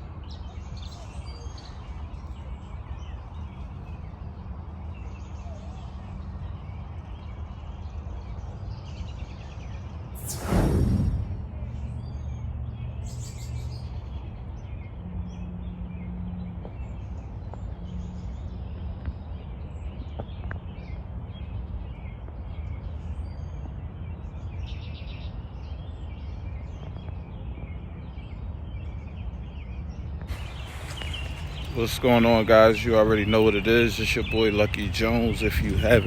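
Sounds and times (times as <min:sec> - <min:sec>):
low outdoor rumble: 0:10.2 - 0:14.1, 0:29.9 - 0:36.0
small birds chirping: 0:16.6 - 0:36.0.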